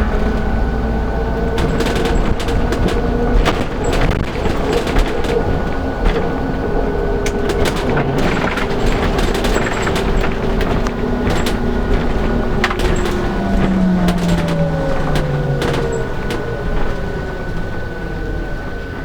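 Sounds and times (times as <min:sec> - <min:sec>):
body clicks and rattles: 0:00.0 - 0:18.6
bus engine drone: 0:00.0 - 0:19.0
road noise: 0:00.0 - 0:19.0.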